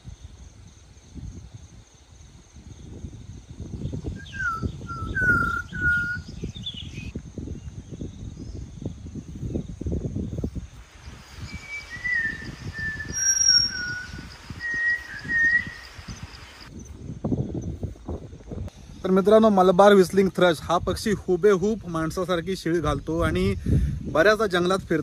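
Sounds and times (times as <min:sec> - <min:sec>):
bird whistling: 0:04.2 - 0:07.1, 0:11.4 - 0:16.7.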